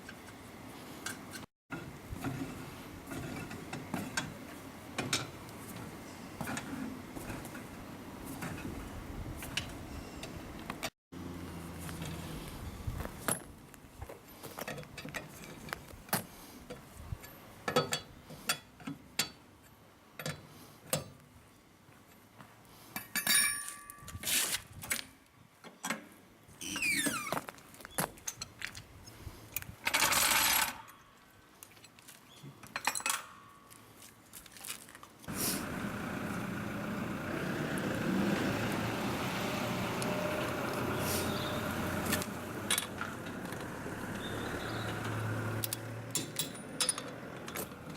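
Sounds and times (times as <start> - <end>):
metal tools clinking: 23.0 - 24.3, 45.6 - 47.8.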